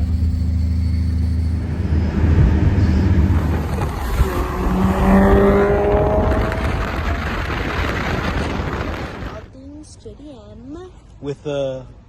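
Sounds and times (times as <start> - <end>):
car engine accelerating: 0.0 - 9.5.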